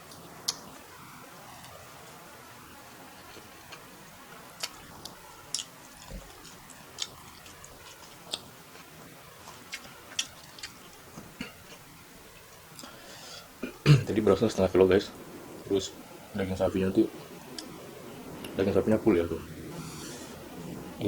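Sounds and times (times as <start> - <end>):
mouth clicks and smacks chewing: 0.0 - 0.8, 4.6 - 11.9.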